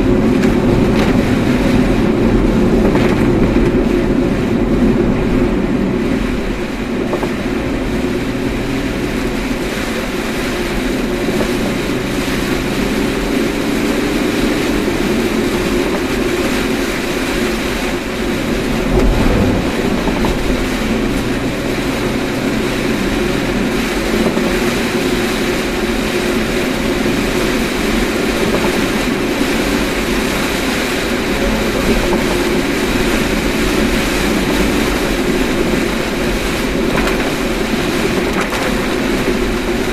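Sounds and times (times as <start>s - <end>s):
car road and engine noise: 0.0s - 39.9s
low hum: 18.4s - 22.1s.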